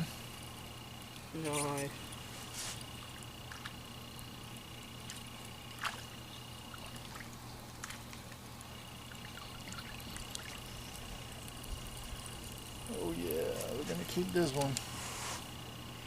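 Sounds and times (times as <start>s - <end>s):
faint trickling water: 1.1s - 14.8s
thin high whine: 8.6s - 16.0s.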